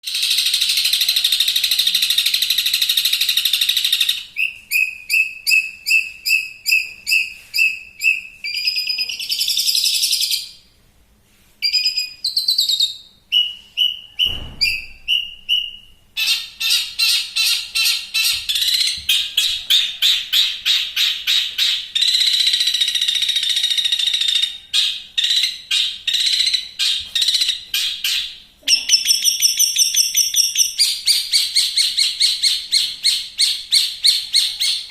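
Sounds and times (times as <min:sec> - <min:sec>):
brief low thump: 0:14.3 - 0:15.0.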